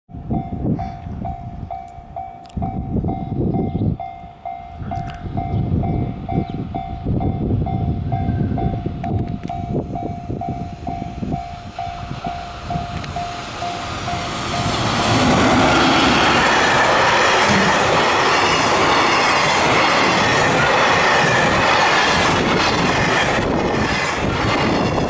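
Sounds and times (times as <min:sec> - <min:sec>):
train wheels rumbling on rails: 0:00.2 - 0:25.0
electronic warning bell pulsing: 0:09.6 - 0:23.4.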